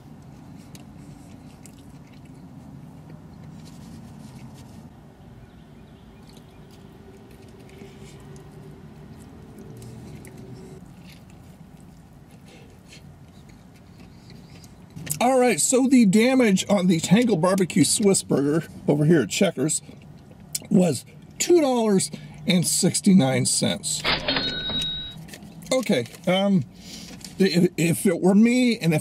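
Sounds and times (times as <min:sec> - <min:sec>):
man chewing a burger: 0:00.0 - 0:04.8, 0:06.0 - 0:15.3, 0:19.7 - 0:21.4.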